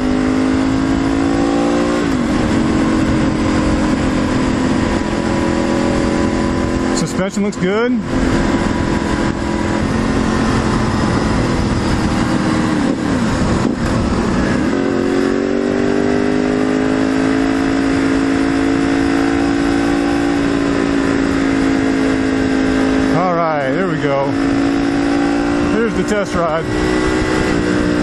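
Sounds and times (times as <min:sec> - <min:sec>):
motorcycle engine: 0:00.0 - 0:28.0
wind rumble on microphone: 0:00.0 - 0:28.0.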